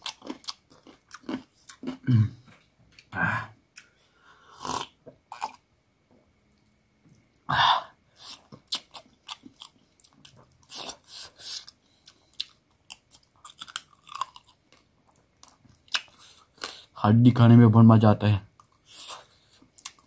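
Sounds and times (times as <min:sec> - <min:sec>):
person chewing and crunching: 0:00.0 - 0:03.2, 0:04.6 - 0:05.6, 0:08.2 - 0:16.9, 0:18.6 - 0:20.0.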